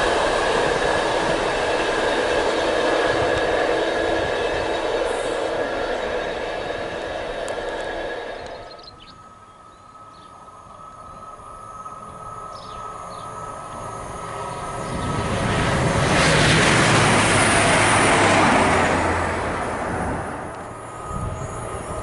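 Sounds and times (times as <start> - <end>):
freight train rail noise: 0.0 - 22.0
passenger train passing: 0.0 - 22.0.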